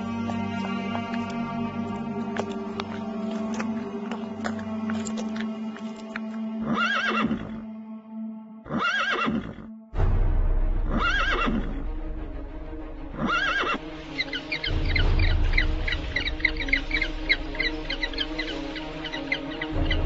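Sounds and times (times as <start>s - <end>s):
background music: 0.0s - 20.0s
horse whinnying: 6.6s - 7.6s, 8.7s - 9.7s, 10.9s - 11.8s, 13.2s - 13.8s.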